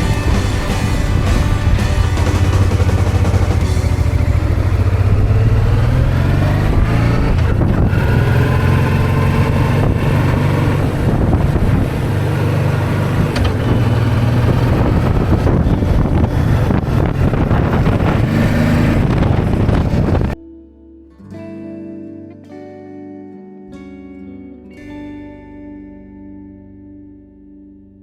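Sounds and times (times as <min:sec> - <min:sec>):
motorcycle engine accelerating: 0:00.0 - 0:20.4.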